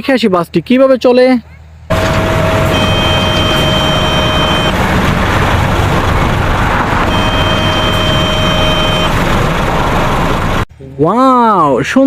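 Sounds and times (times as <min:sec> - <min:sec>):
high electronic tone: 0:01.9 - 0:06.0, 0:06.9 - 0:10.6.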